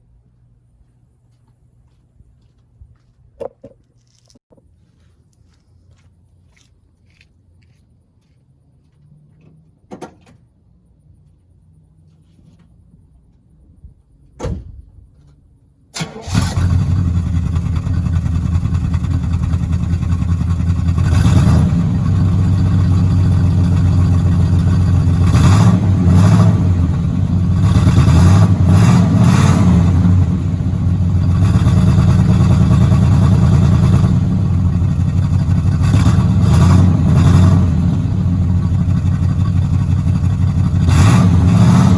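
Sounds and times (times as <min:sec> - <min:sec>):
car engine starting and running: 0:15.9 - 0:41.9
engine revving: 0:16.0 - 0:41.9.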